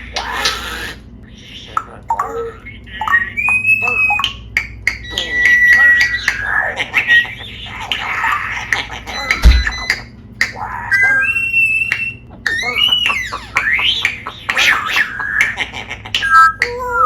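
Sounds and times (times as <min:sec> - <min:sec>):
parrot whistles and squawks: 0:00.0 - 0:17.0
loud low thump: 0:09.4 - 0:09.8.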